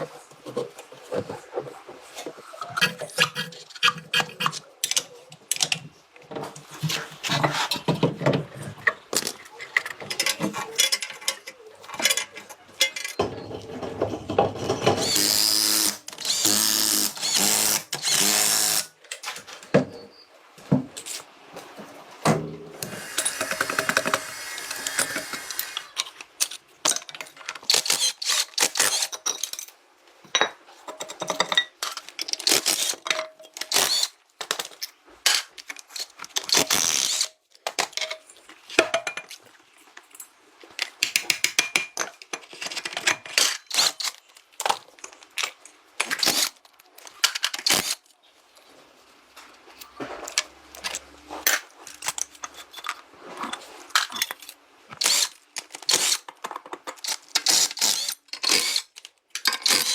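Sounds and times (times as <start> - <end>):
clicks and knocks of tool work: 0.0 - 20.0, 22.2 - 48.2, 49.4 - 59.9
power tool whirring: 15.0 - 18.9, 22.8 - 26.0.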